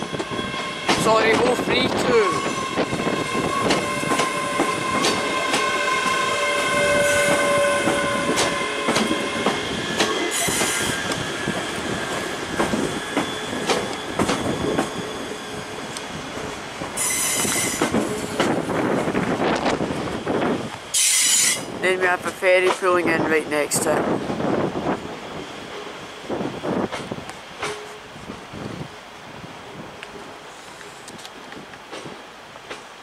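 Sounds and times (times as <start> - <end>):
train wheels squealing: 2.2 - 15.8, 17.0 - 18.0, 20.9 - 21.7.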